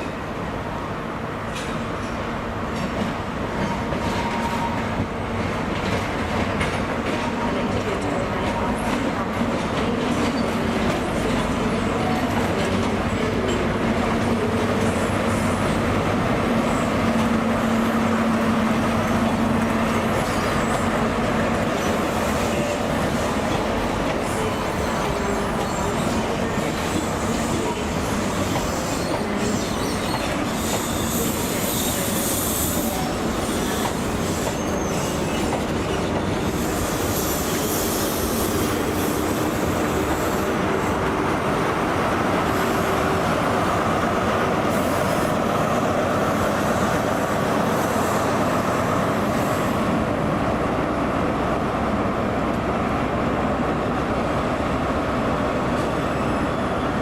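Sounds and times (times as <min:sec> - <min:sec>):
train wheels rumbling on rail: 0:00.0 - 0:57.0
high wheel squeal: 0:24.3 - 0:40.6, 0:55.7 - 0:57.0.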